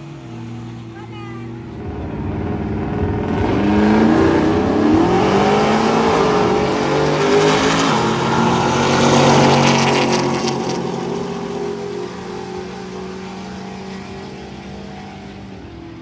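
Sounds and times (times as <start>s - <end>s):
drag racing engine accelerating: 0.0s - 16.0s.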